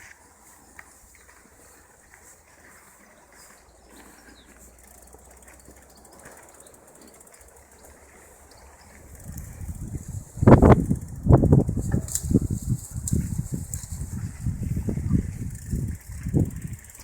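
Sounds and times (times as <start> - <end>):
small ticks and clicks: 0.0 - 17.0
faint rustling: 11.7 - 17.0.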